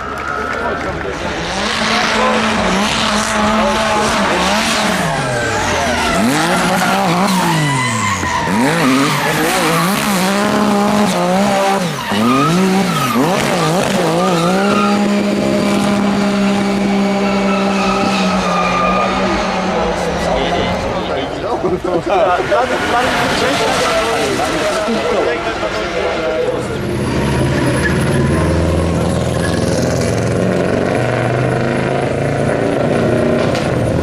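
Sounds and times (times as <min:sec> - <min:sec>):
racing car engine revving: 0:00.0 - 0:34.0
tyres squealing: 0:01.8 - 0:15.6, 0:17.0 - 0:21.2.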